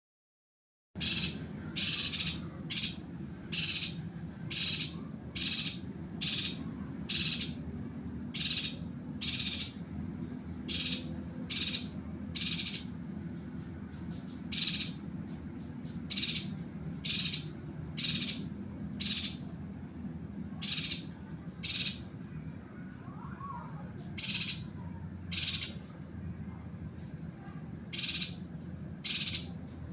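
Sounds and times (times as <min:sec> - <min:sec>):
bird harsh rasping call: 0:01.0 - 0:07.6, 0:08.3 - 0:09.8, 0:10.6 - 0:12.9, 0:14.5 - 0:15.0, 0:16.1 - 0:19.5, 0:20.6 - 0:22.1, 0:24.2 - 0:25.8, 0:27.9 - 0:28.4, 0:29.0 - 0:29.6
steady low hum: 0:01.0 - 0:29.9.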